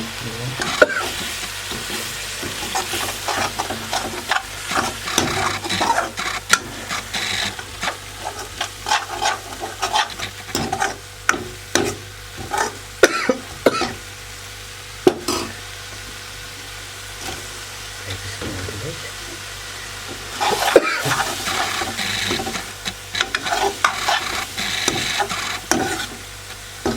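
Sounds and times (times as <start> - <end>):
spices sizzling in oil: 0.0 - 26.9
spoon scraping pan: 0.6 - 11.0, 20.2 - 26.9.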